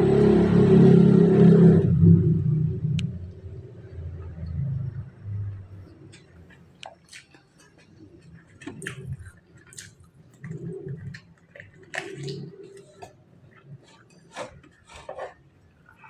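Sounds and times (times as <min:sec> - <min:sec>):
person chewing: 0:05.9 - 0:16.0.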